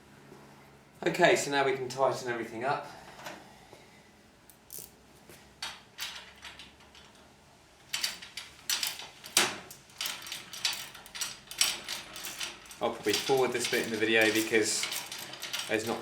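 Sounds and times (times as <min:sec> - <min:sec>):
spanner clicking on bolts: 0:04.5 - 0:05.0.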